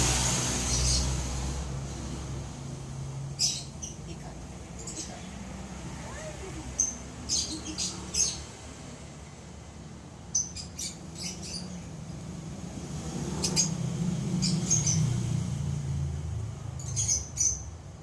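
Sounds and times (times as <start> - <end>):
lovebirds chirping: 3.1 - 9.0, 10.2 - 12.4, 13.2 - 15.2, 16.6 - 18.0.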